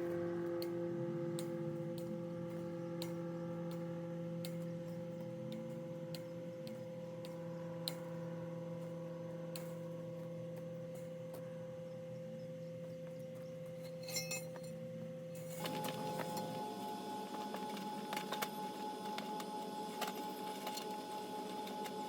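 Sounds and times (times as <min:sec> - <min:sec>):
mechanical hum: 0:00.0 - 0:22.0
metallic clinking: 0:13.8 - 0:14.8.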